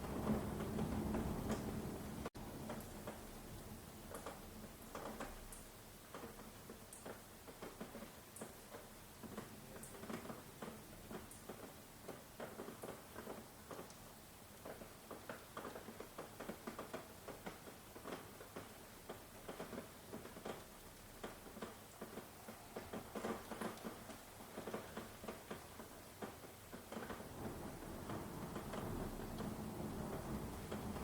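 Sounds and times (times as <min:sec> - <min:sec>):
low thunder rumble: 0:00.0 - 0:02.3, 0:27.2 - 0:31.0
faint hiss: 0:00.0 - 0:31.0
rain drops pattering: 0:00.0 - 0:31.0.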